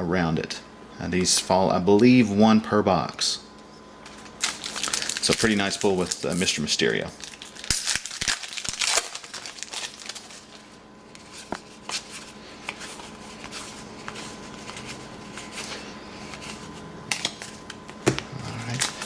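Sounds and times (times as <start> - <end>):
faint steady hum: 0.0 - 19.0
cards clicking and rustling: 4.0 - 19.0.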